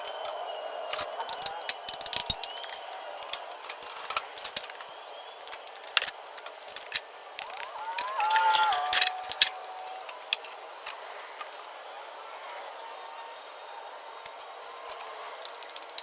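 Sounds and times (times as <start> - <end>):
tools clicking and clattering: 0.2 - 2.8, 5.5 - 11.5.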